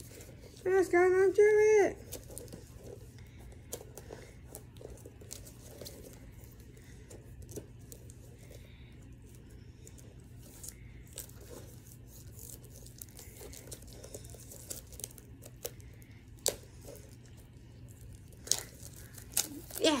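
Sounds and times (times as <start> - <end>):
plastic wrap crinkling and tearing: 10.4 - 20.0.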